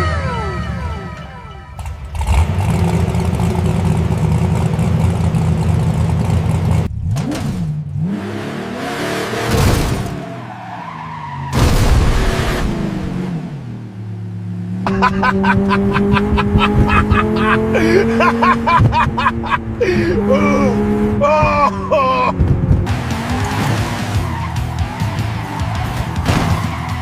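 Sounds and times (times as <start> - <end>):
cartoon engine sound effect: 0.0 - 1.8.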